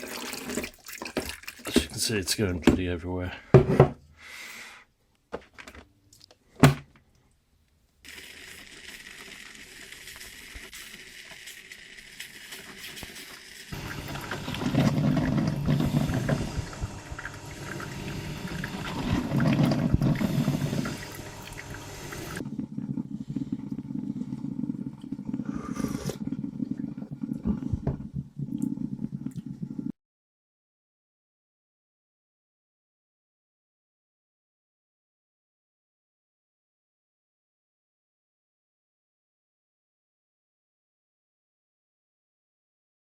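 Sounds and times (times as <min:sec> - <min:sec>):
water pouring and gurgling: 0:00.0 - 0:02.2, 0:08.1 - 0:29.9
hissing water: 0:08.1 - 0:22.4.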